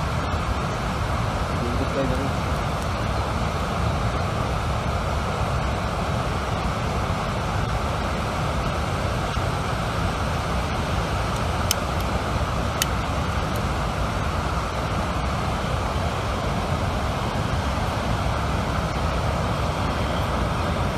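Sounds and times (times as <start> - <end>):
sharp clicks: 11.3 - 13.7.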